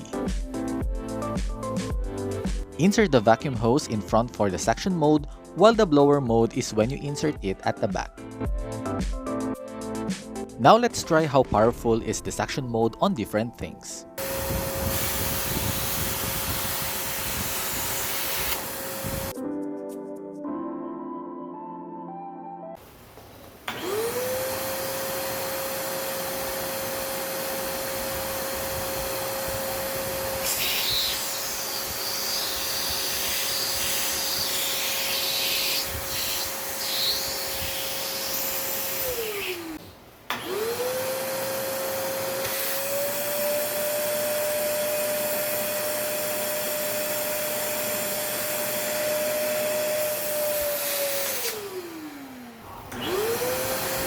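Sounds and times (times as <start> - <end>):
vacuum cleaner motor whine: 14.2 - 19.3, 22.8 - 54.0.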